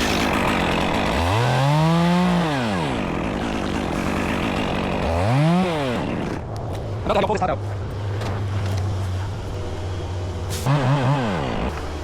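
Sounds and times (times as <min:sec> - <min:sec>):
chainsaw revving: 0:00.0 - 0:06.4, 0:10.6 - 0:12.0.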